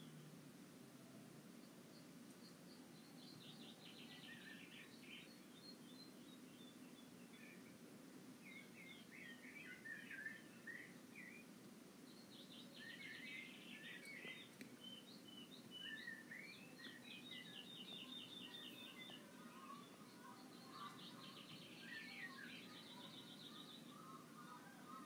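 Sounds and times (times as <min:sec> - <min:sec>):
faint songbirds chirping and trilling: 0:00.0 - 0:25.0
low steady background noise: 0:00.0 - 0:25.0.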